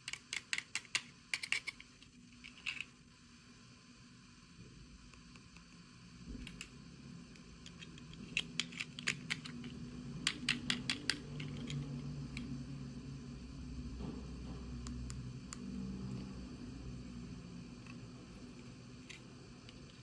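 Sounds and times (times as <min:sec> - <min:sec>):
plastic pieces clicking: 0:00.0 - 0:02.9
low hum: 0:05.9 - 0:20.0.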